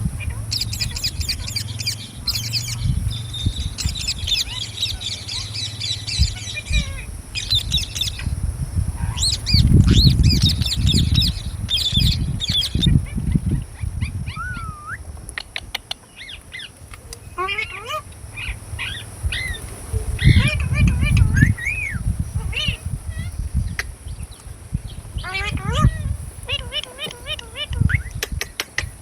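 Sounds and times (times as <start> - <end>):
low rumbling and thumps: 0.0 - 15.3
parrots chirping: 0.0 - 29.0.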